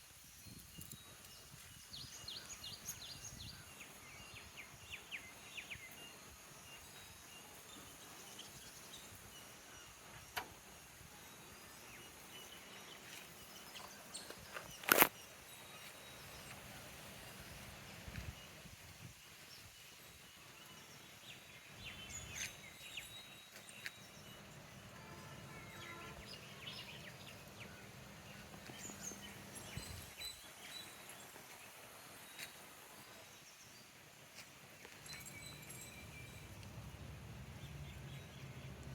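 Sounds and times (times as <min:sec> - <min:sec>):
bird or insect chirps: 0:00.2 - 0:33.9, 0:34.8 - 0:38.9.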